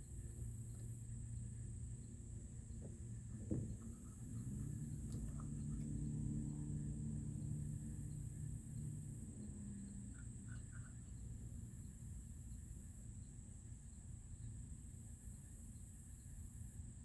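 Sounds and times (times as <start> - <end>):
high insect drone: 0.0 - 17.0
low steady hum: 0.0 - 17.0
faint chirps: 9.4 - 12.6.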